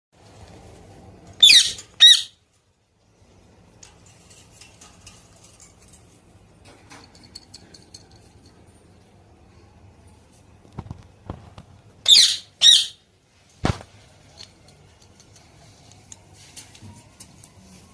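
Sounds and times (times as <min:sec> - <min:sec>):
parrot squawking: 0:01.4 - 0:02.4, 0:12.0 - 0:13.0.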